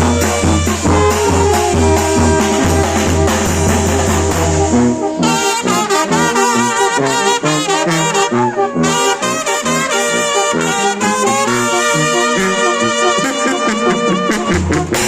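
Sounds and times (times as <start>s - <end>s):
deep bass: 0.0s - 9.3s
cymbals: 0.0s - 13.4s
brass band playing: 0.0s - 15.0s
horns playing melody with vibrato: 0.0s - 15.0s.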